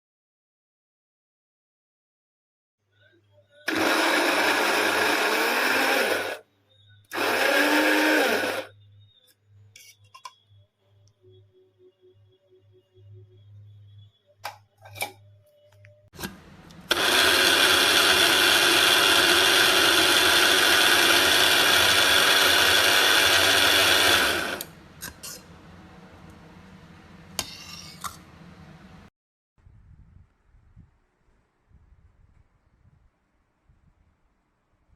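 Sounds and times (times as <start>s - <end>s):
coffee grinder motor running: 3.7s - 6.4s, 7.1s - 8.7s, 16.8s - 25.2s.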